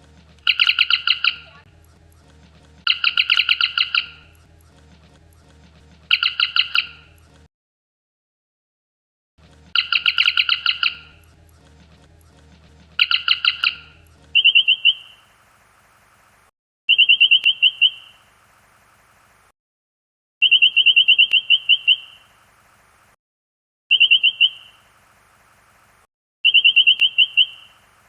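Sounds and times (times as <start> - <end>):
electronic warbling chirps: 9.8 - 11.1.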